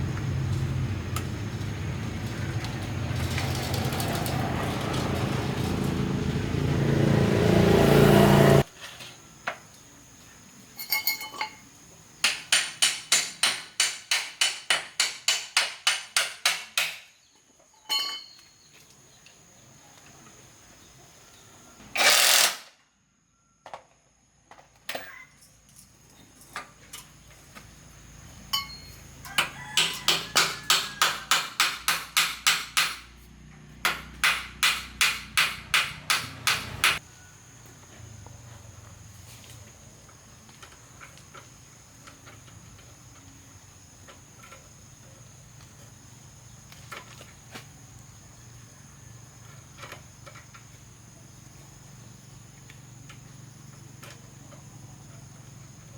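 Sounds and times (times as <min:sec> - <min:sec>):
hammer striking: 0:12.2 - 0:17.1, 0:28.6 - 0:33.1, 0:33.8 - 0:37.0.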